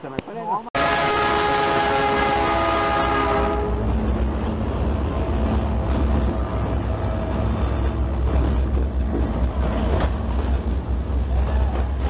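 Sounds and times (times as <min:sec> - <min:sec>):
locomotive horn chord: 0:00.8 - 0:03.9
train running rumble: 0:00.8 - 0:12.0.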